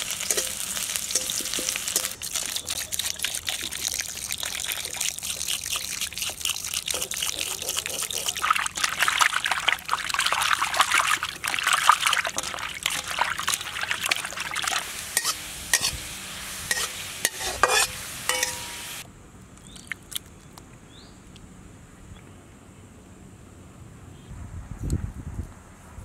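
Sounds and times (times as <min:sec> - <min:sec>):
food crackling in a hot pan: 0:00.0 - 0:19.1.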